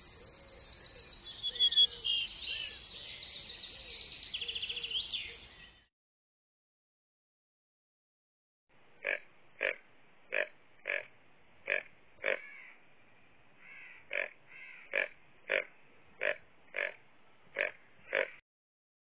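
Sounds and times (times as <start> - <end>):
deer calling: 9.0 - 12.8, 13.6 - 18.4.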